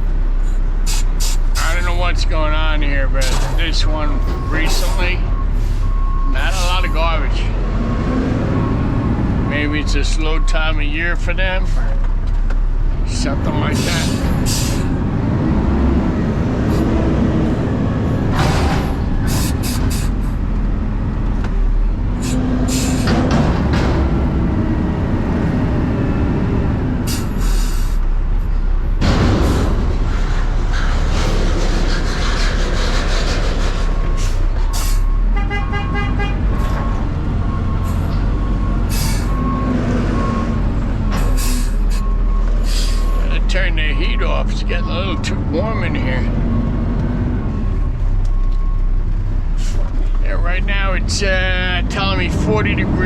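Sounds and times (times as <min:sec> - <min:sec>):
road and engine rumble in car: 0:00.0 - 0:53.0
beeping alarm: 0:03.0 - 0:11.8, 0:33.9 - 0:49.0.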